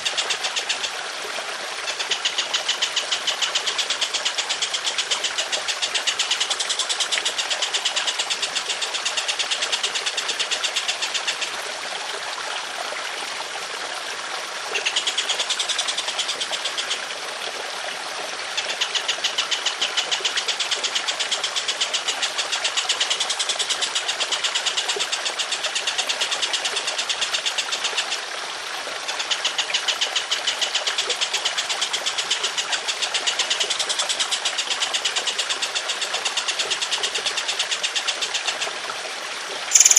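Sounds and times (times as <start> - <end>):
running water trickling: 0.0 - 39.9.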